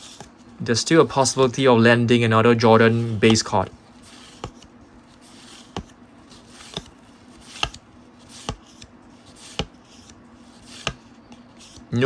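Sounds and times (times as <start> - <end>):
trading cards clicking onto stack: 6.5 - 7.8.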